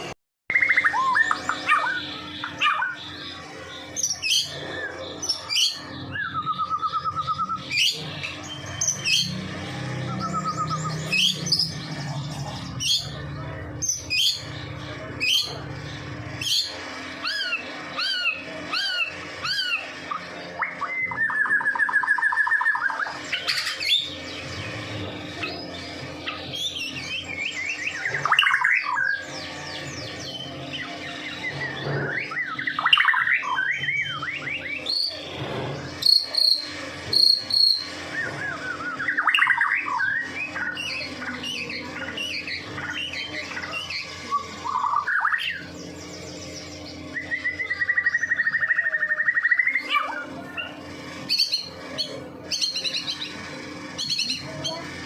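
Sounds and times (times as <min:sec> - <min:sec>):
buzzy bird trill: 0:00.0 - 0:55.0
bird singing whistled phrases: 0:37.2 - 0:40.8.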